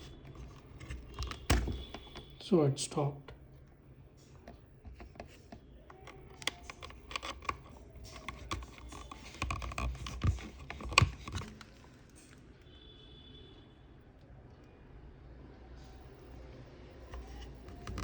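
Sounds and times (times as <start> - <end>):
hands handling plastic parts: 0.0 - 2.4, 4.4 - 12.4.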